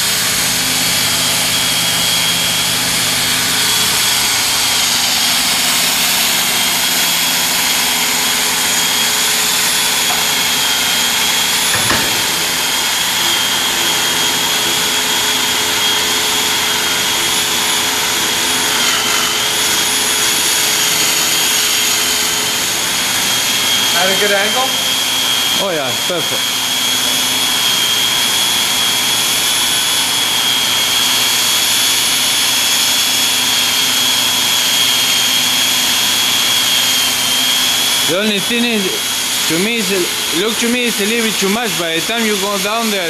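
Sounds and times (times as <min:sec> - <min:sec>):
drill whining through concrete: 0:00.0 - 0:43.0
single knock: 0:11.7 - 0:12.4.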